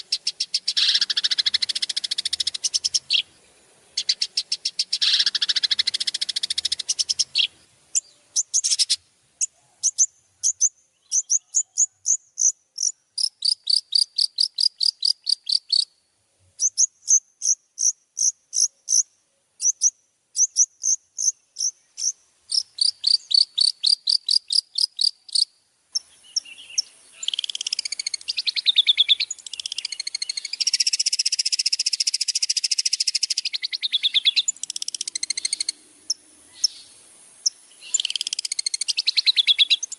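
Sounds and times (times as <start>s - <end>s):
songbird song: 0.0s - 39.9s.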